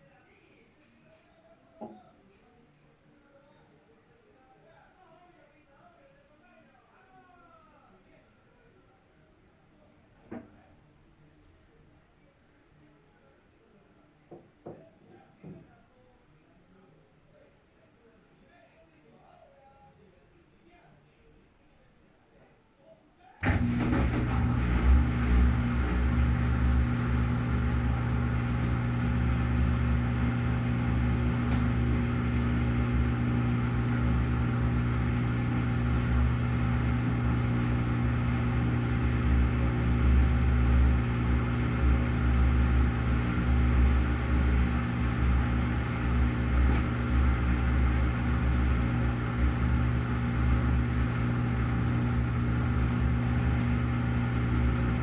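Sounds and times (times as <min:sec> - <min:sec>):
low surging rumble: 0:23.4 - 0:55.0
washing machine motor hum: 0:23.4 - 0:55.0.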